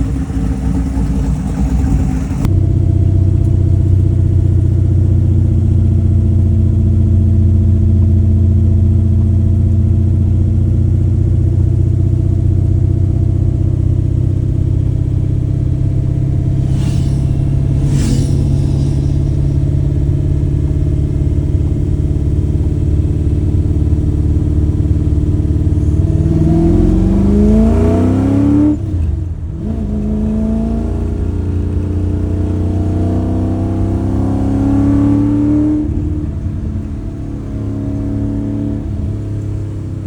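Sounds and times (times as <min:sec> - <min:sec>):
vee eight engine exhaust revving: 0:14.1 - 0:40.0.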